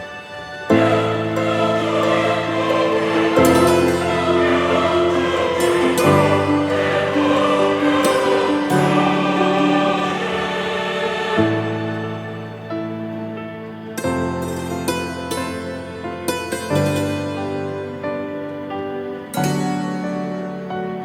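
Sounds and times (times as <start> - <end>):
choir singing long chords: 0.0 - 16.1.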